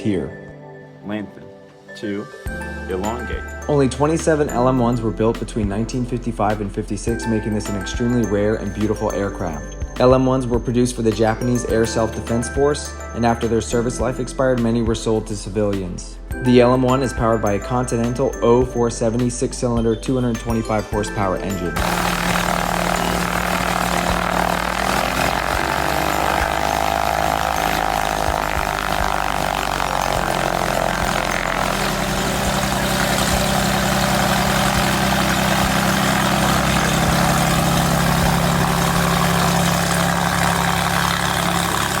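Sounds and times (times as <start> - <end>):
light aircraft engine drone: 21.8 - 42.0
propeller noise: 21.8 - 42.0.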